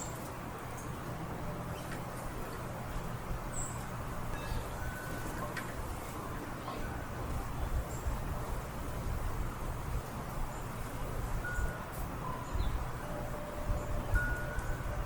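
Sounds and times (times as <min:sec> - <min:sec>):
steady low rumble: 0:00.0 - 0:15.0
wind chimes: 0:03.4 - 0:08.2, 0:10.5 - 0:15.0.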